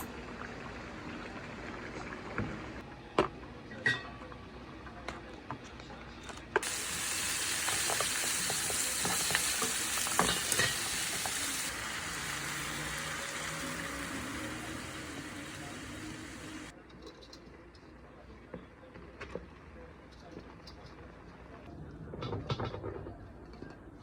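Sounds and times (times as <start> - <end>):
utensils and dishes clinking: 3.7 - 4.3, 6.2 - 17.8
loud steady hiss: 6.6 - 16.7.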